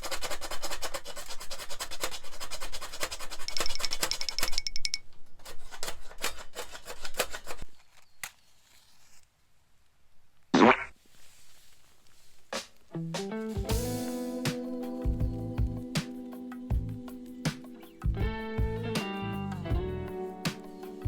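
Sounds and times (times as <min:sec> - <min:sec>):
rasping scrape strokes: 0:00.0 - 0:04.7, 0:05.4 - 0:07.6.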